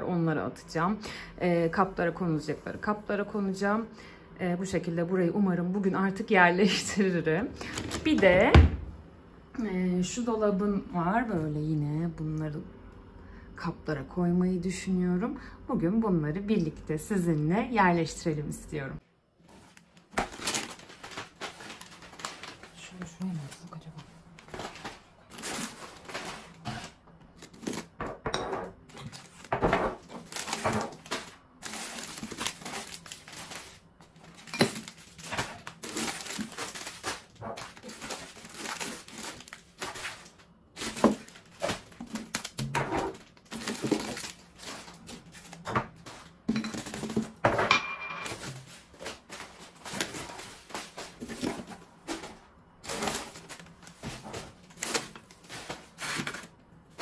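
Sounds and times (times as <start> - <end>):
items knocking and clattering: 7.6 - 9.0, 24.4 - 57.0
plastic packets crinkling: 19.6 - 23.7, 24.3 - 28.0, 29.0 - 47.3, 48.3 - 57.0.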